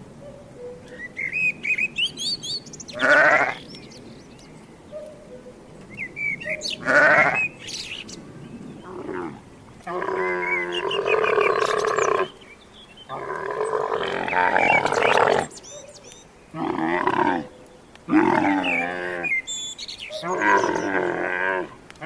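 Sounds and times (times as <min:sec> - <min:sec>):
farm animal calling: 0:02.9 - 0:03.7, 0:04.9 - 0:08.1, 0:08.8 - 0:12.4, 0:13.0 - 0:22.0.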